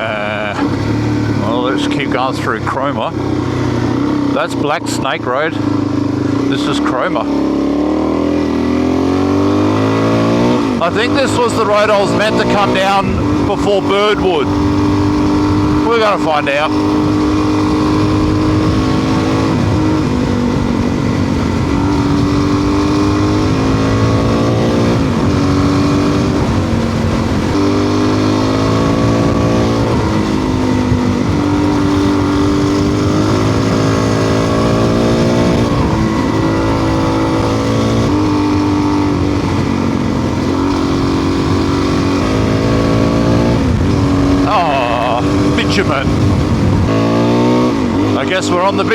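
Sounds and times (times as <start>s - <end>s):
motorcycle engine shifting gears: 0.0s - 48.9s
steady rushing noise: 0.0s - 48.9s.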